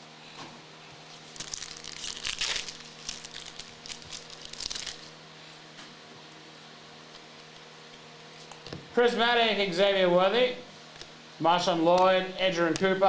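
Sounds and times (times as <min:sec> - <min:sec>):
card pack wrapper tearing and crinkling: 0:01.3 - 0:05.2.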